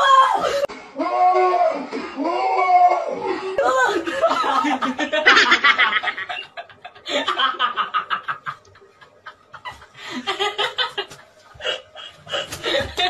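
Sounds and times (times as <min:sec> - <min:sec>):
person laughing: 0:04.0 - 0:13.0.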